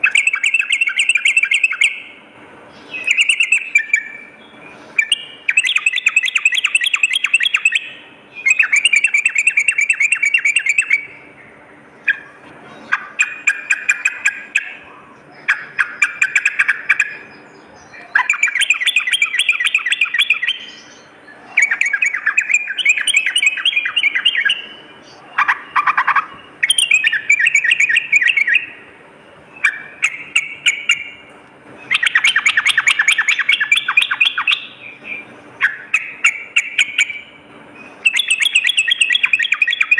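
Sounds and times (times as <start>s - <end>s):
bulbul singing chattering phrases: 0.0s - 39.9s.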